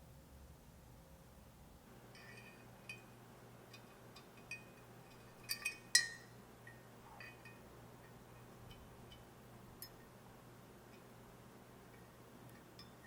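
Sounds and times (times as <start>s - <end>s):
small metal parts clinking: 3.7s - 6.3s.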